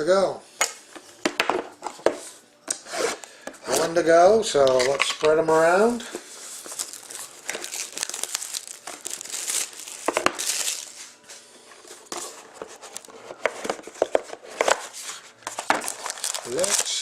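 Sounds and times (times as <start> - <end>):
plastic wrapping crinkling: 6.4 - 11.2, 11.9 - 17.0.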